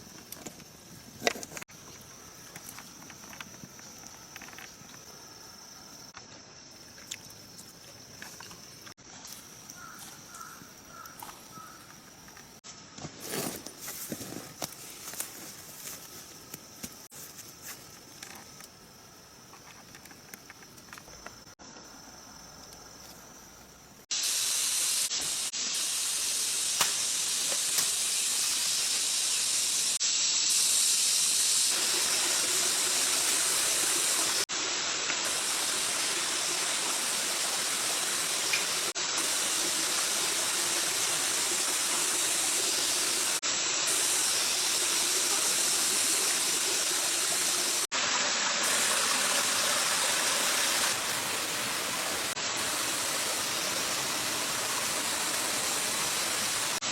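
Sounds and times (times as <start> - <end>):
rushing water of a stream: 31.7 - 56.9.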